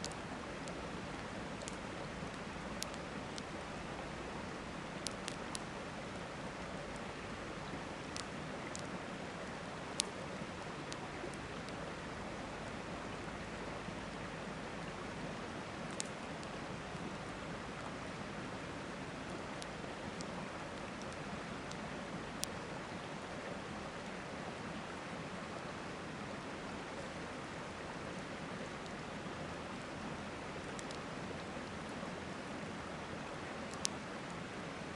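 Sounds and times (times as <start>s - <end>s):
campfire crackling and popping: 0.0s - 3.6s, 4.9s - 6.3s.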